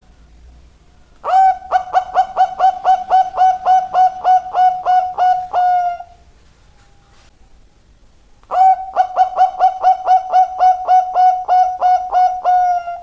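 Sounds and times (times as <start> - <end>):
dove cooing: 1.2 - 6.3, 8.5 - 13.0.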